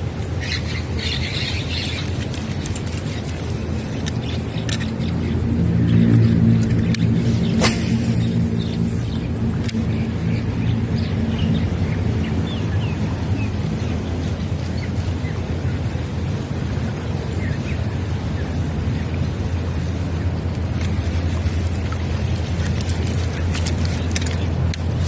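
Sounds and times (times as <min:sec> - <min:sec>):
steady low rumble: 0:00.0 - 0:25.0
small birds chirping: 0:00.3 - 0:15.8.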